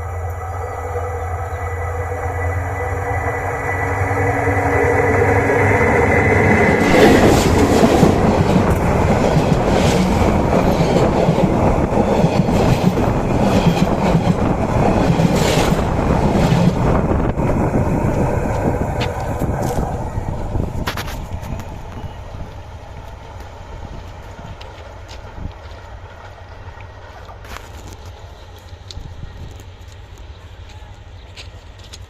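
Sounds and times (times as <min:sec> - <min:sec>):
steady whine: 0:00.0 - 0:24.9
train wheels rumbling and rattling: 0:00.0 - 0:32.0
clacks of train wheels: 0:02.0 - 0:32.0.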